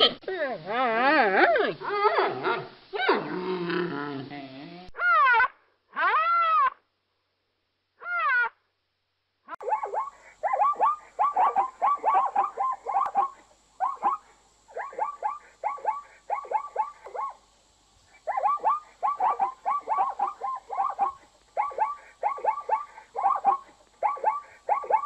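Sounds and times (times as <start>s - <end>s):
zebras yelping barks: 9.6s - 17.5s, 18.1s - 25.0s.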